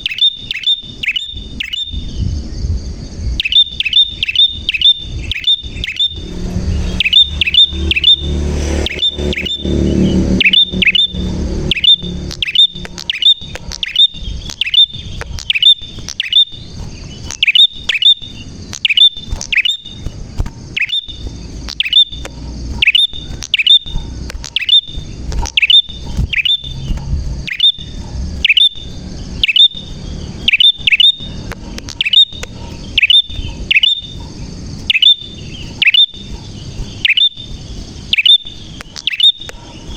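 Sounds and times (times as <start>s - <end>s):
bird chip notes: 3.4s - 34.2s
low rumble: 4.5s - 16.0s, 19.9s - 37.0s.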